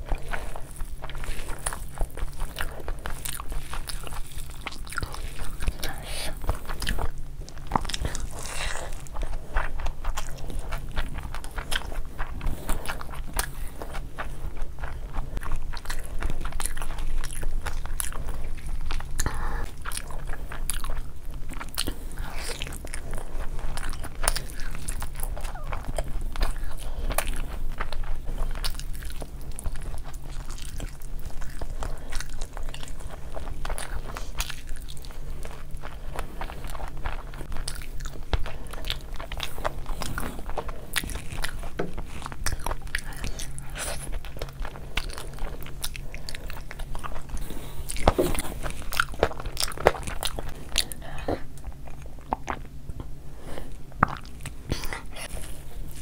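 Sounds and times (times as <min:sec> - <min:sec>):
faint low hum: 0:00.0 - 0:56.0
person chewing and biting: 0:00.0 - 0:56.0.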